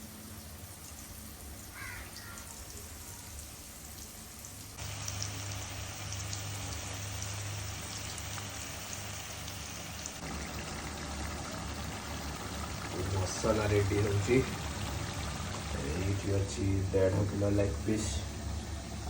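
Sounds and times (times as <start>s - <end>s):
liquid pouring and splashing: 0.0s - 18.8s.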